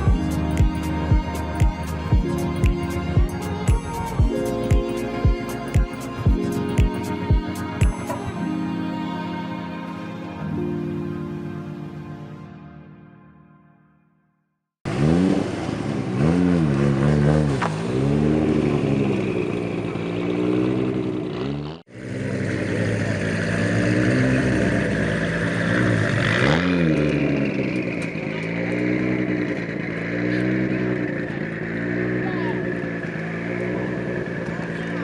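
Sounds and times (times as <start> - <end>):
car engine revving: 14.9 - 35.0.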